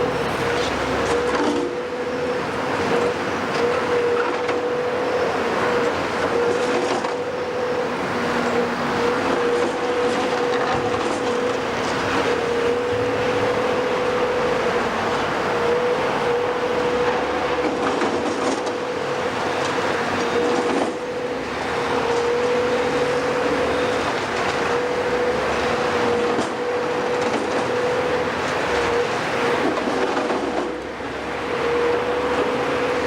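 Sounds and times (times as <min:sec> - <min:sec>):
demolition machinery running: 0:00.0 - 0:33.0
knocks and clanks: 0:29.6 - 0:30.8.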